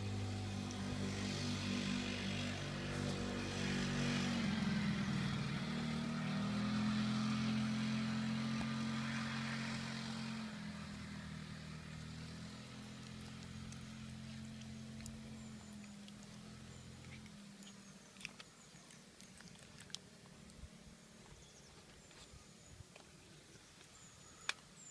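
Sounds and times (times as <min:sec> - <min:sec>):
motor engine running: 0:00.0 - 0:18.4.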